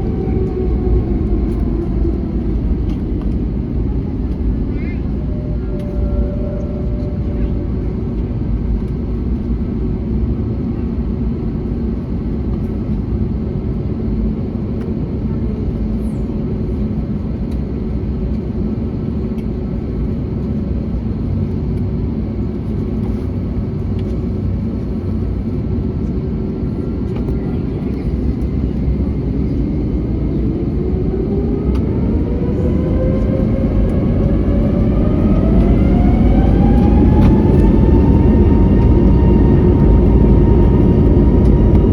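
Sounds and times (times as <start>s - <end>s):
jet engines spooling up: 22.9s - 41.9s.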